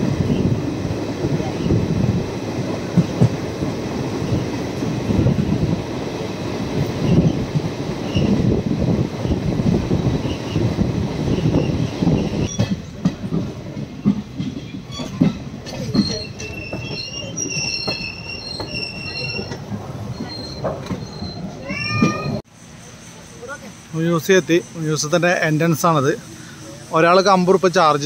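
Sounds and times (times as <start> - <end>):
train wheels rumbling on track: 0.0 - 28.0
high wheel squeal: 14.9 - 27.7.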